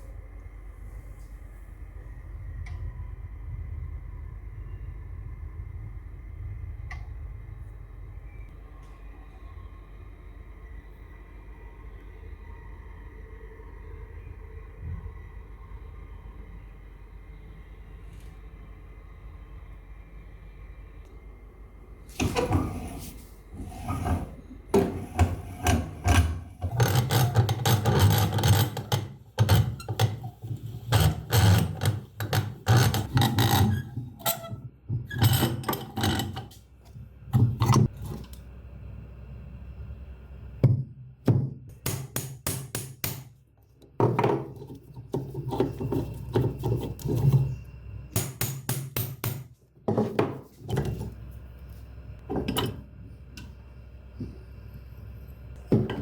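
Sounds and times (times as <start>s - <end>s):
tool knocking and scraping metal: 23.6s - 36.6s, 44.0s - 47.6s.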